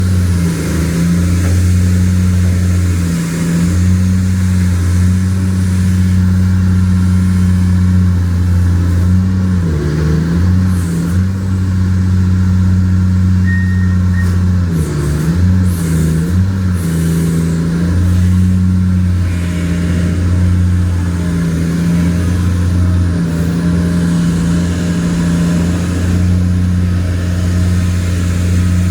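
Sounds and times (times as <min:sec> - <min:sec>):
excavator diesel engine running: 0:00.0 - 0:28.9.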